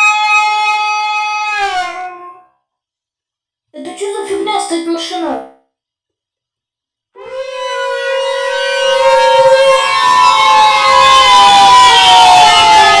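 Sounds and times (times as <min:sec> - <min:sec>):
locomotive horn blast: 0:07.2 - 0:13.0.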